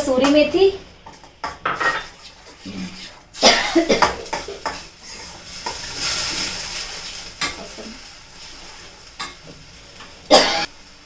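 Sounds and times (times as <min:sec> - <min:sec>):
spices sizzling in a pan: 0:00.0 - 0:11.0
utensil scraping a pan: 0:01.2 - 0:09.4.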